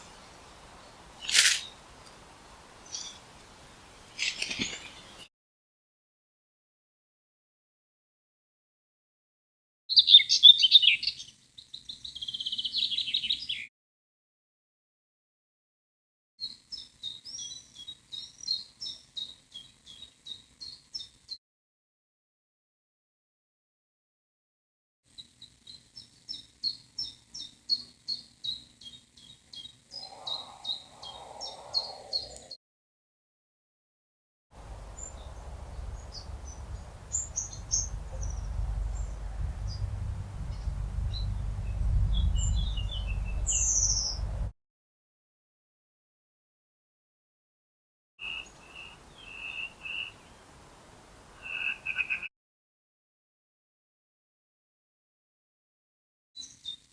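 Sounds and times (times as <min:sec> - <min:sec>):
songbird chirping: 0:00.0 - 0:05.3, 0:25.7 - 0:32.5, 0:34.6 - 0:44.5, 0:48.2 - 0:52.3
steady low rumble: 0:34.6 - 0:44.5.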